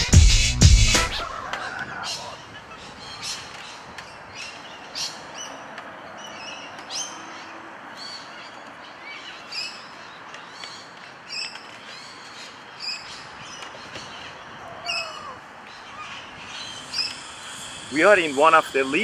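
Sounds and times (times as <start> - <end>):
birds calling: 0.0 - 19.0
steady background hiss: 8.9 - 19.0.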